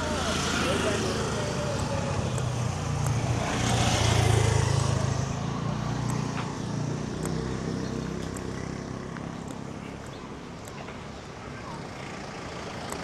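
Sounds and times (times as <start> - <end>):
vehicle passing by: 0.0 - 9.4.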